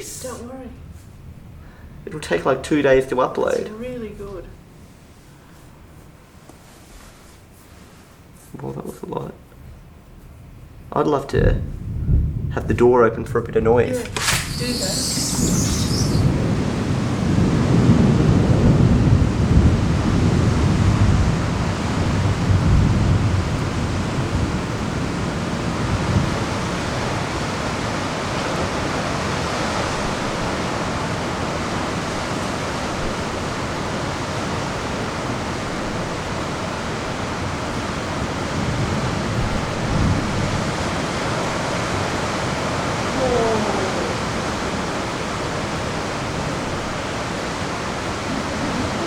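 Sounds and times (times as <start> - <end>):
heavy rain hissing: 0.0 - 5.8, 13.8 - 49.0
thunder rumble: 11.3 - 49.0.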